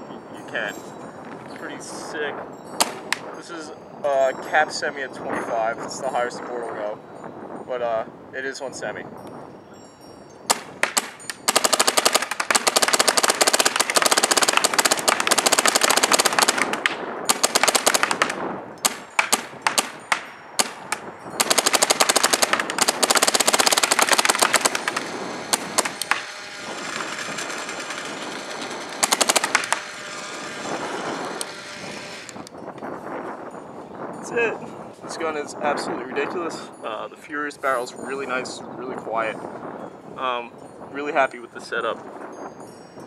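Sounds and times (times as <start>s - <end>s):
paintball marker firing rapidly: 10.5s - 28.3s, 28.9s - 30.0s.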